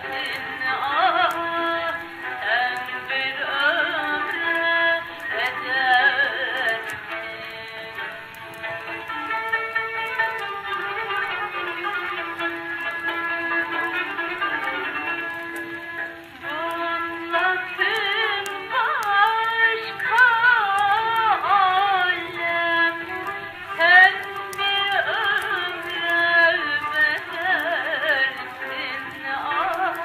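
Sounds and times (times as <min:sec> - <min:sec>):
person singing with vibrato: 0:00.0 - 0:08.4, 0:16.4 - 0:30.0
record clicks: 0:00.0 - 0:30.0.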